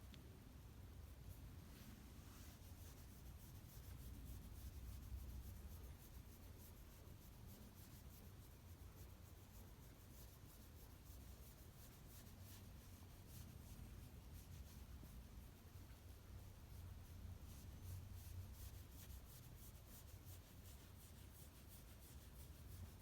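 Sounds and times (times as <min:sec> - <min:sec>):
low room hum: 0:00.0 - 0:23.0
hand stroking dog fur: 0:01.3 - 0:16.8.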